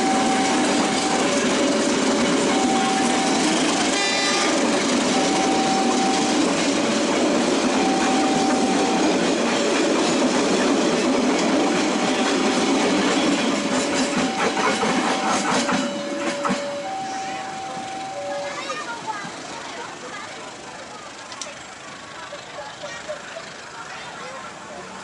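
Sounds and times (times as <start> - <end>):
train wheels rumbling on rails: 0.0 - 25.0
wheels clicking over rail joints: 0.0 - 25.0
electronic two-note tone: 2.5 - 6.5, 7.7 - 9.2, 13.9 - 18.8.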